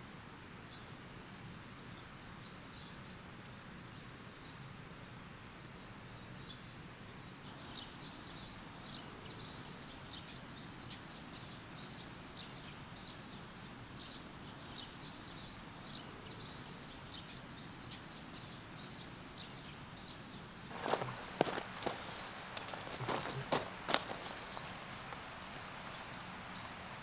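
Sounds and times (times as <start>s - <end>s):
insects droning: 0.1s - 27.0s
soft background rush: 20.7s - 27.0s.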